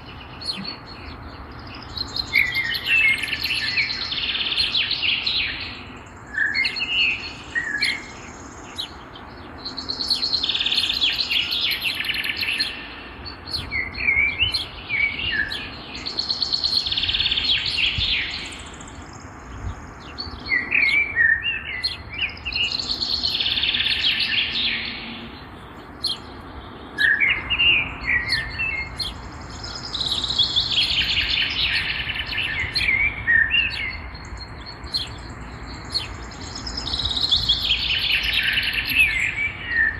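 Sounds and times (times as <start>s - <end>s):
songbird trilling: 0.0s - 39.9s
sharp bird chirps: 27.0s - 39.9s.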